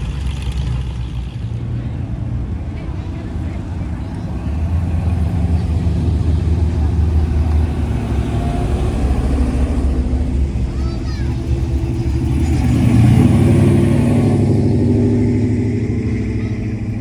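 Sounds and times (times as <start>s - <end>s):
car engines rumbling past: 0.0s - 17.0s
loud car pulling past: 0.0s - 17.0s.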